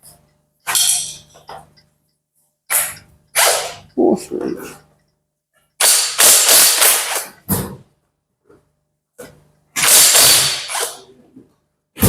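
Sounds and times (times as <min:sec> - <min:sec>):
power tool bursts: 0:05.8 - 0:07.4, 0:09.8 - 0:11.1.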